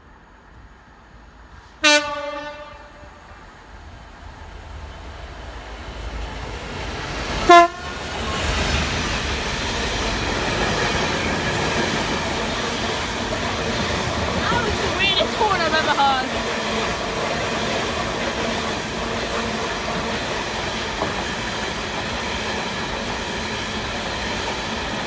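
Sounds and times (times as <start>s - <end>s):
train rumbling on rails: 0.0s - 25.0s
train horn blasts: 1.8s - 3.4s, 7.4s - 8.0s.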